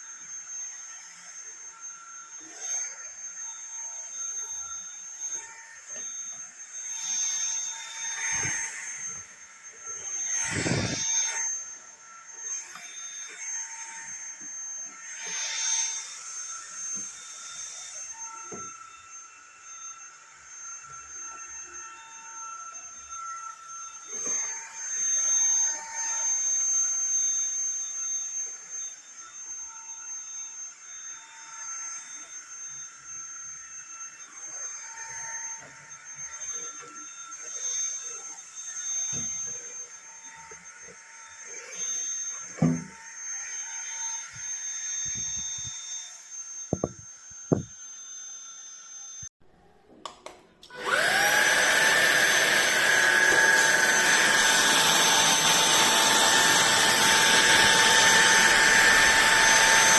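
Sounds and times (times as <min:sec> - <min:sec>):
stick vacuum whining: 0:00.8 - 0:25.8, 0:34.6 - 0:43.6, 0:44.2 - 0:45.9, 0:46.7 - 0:47.8, 0:50.0 - 0:59.9
thump: 0:42.6 - 0:42.9, 0:46.7 - 0:47.7.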